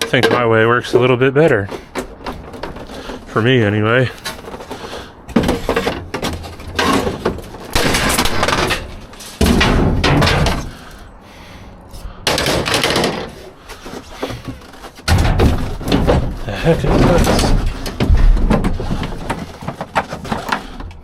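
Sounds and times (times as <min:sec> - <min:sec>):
scrap metal crashing in dumpster: 0:05.4 - 0:11.0, 0:14.7 - 0:20.2.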